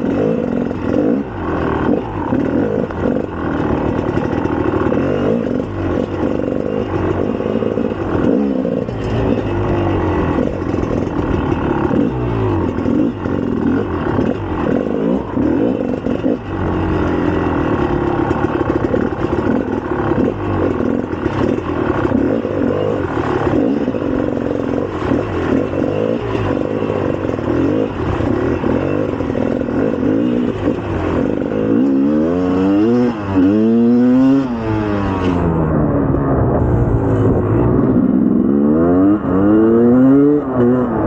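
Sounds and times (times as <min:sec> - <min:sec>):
two-stroke engine revving: 0:00.0 - 0:41.0.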